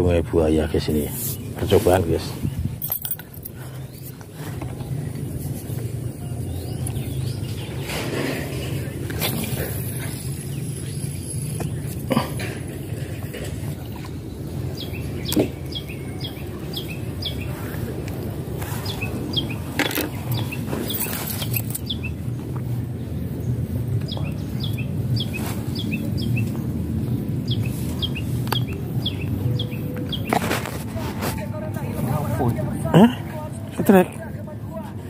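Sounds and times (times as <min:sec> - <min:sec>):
steady low rumble: 0:00.7 - 0:35.0
bird chirping: 0:13.8 - 0:17.7, 0:18.7 - 0:22.4, 0:23.3 - 0:30.5.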